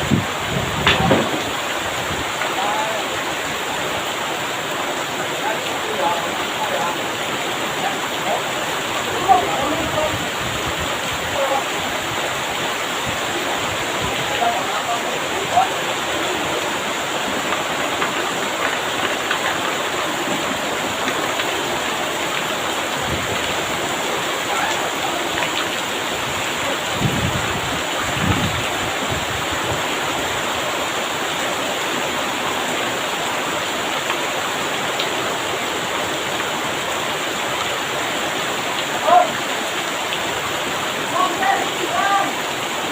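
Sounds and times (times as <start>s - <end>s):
strong wind gusts: 0.0s - 5.4s, 6.0s - 33.3s
heavy rain pouring: 0.0s - 42.9s.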